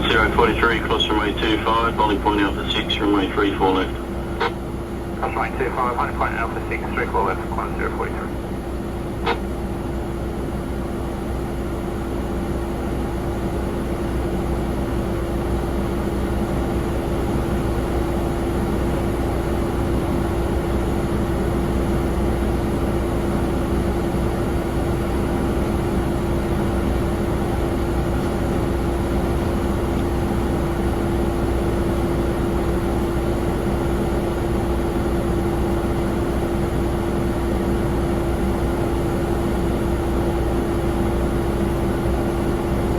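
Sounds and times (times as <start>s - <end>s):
radio transmission click: 0.0s - 4.6s, 5.2s - 8.4s, 9.2s - 9.4s
jet engine drone: 0.0s - 42.9s.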